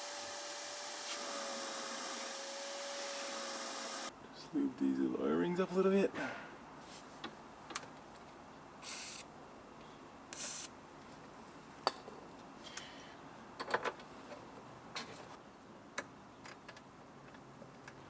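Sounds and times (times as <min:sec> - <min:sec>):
short hissing bursts: 0:10.4 - 0:10.7.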